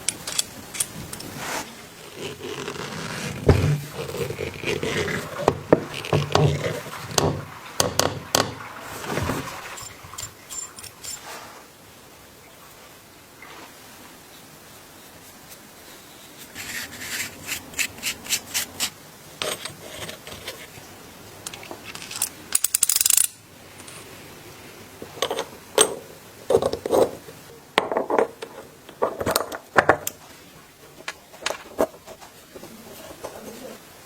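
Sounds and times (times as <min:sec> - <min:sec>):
scraping small hard parts: 0:00.0 - 0:11.4, 0:16.5 - 0:20.8, 0:21.5 - 0:24.2
knocks and rubs: 0:01.3 - 0:11.2.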